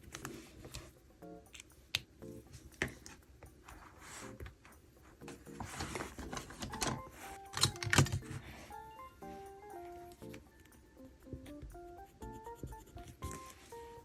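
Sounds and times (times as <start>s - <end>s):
soft background music: 0.0s - 14.0s
paper rustling: 5.5s - 8.4s.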